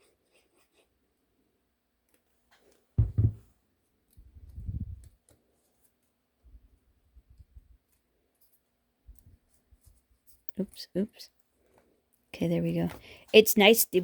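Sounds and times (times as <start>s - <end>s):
paper pieces knocking on table: 3.0s - 3.4s
soft bumps: 3.0s - 3.5s.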